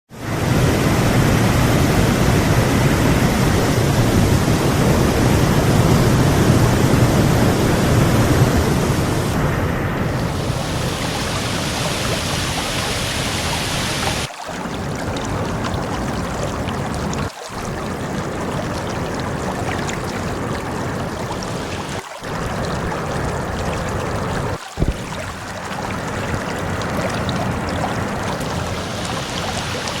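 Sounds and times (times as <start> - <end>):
waterfall pouring: 10.0 - 30.0.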